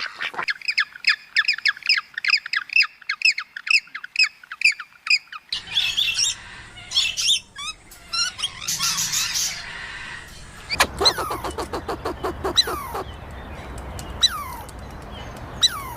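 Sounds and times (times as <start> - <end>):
high irregular bird calls: 0.0 - 15.9
bird squawking: 5.6 - 13.2.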